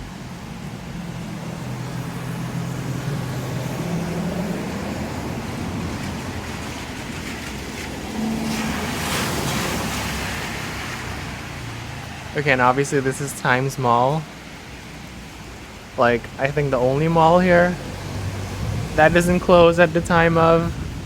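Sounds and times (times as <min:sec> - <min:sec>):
heavy rain on street: 0:00.0 - 0:21.0
traffic on wet road: 0:00.0 - 0:21.0
vehicle splashing through water: 0:00.0 - 0:21.0.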